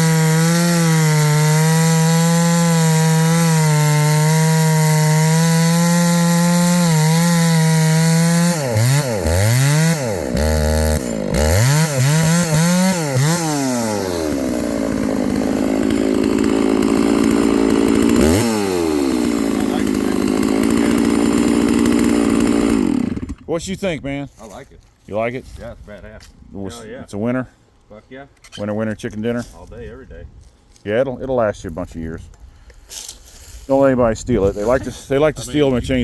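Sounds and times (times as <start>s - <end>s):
chainsaw cutting and revving: 0.0s - 23.5s.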